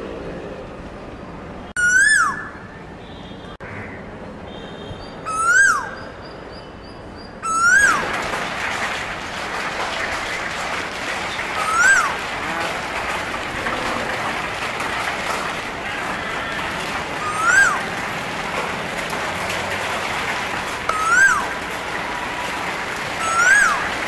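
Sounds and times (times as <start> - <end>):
bird whistle call: 5.3 - 6.0, 20.9 - 21.5.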